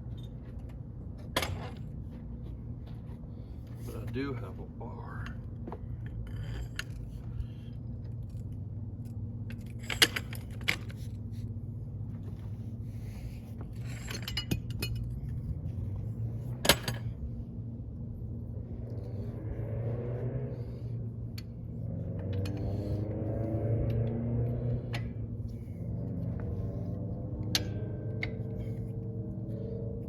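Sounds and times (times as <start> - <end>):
low hum: 0.0 - 30.0
metal tools clinking on steel: 9.4 - 11.0, 13.8 - 15.4.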